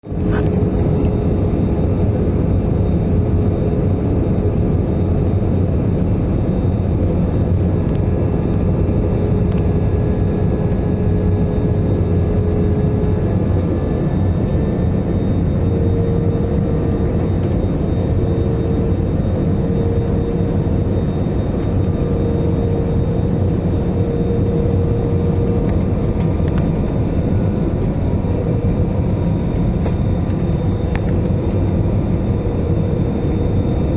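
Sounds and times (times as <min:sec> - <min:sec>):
engine whine: 0:00.0 - 0:33.9
jet engine and airflow rumble: 0:00.0 - 0:33.9.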